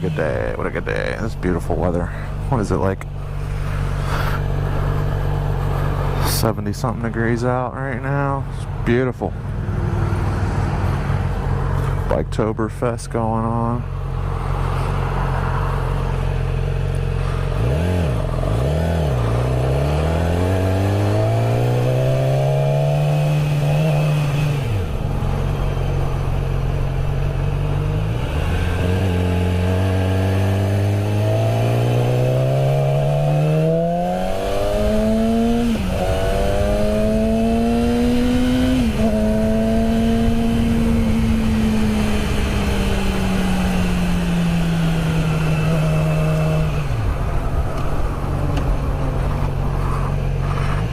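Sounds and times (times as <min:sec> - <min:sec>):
motorcycle engine shifting gears: 0:13.8 - 0:50.9.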